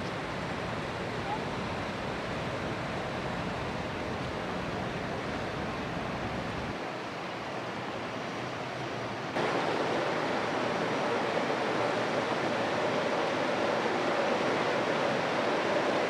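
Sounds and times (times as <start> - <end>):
river water washing against bank: 0.0 - 16.0.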